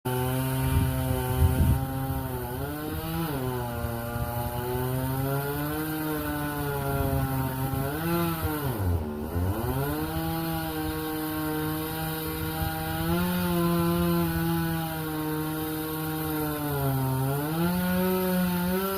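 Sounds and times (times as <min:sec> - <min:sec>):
chainsaw cutting wood: 0:00.1 - 0:18.9.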